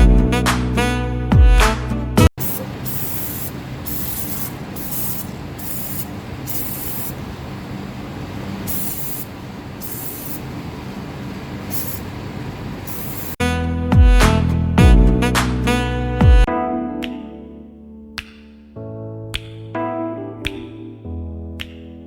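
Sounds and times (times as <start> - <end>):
music: 0.0 - 2.3, 13.4 - 22.0
aerosol can spraying: 2.4 - 7.3, 8.6 - 10.5, 11.7 - 12.1, 12.9 - 13.4.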